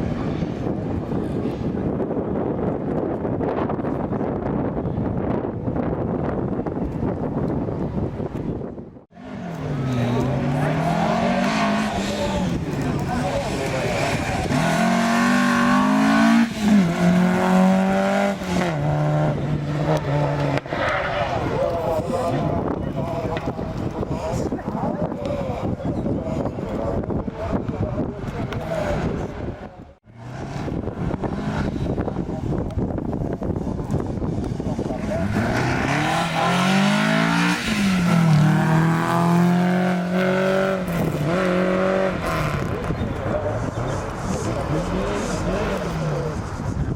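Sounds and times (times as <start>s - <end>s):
rally car engine accelerating: 9.2s - 21.6s, 30.1s - 46.9s.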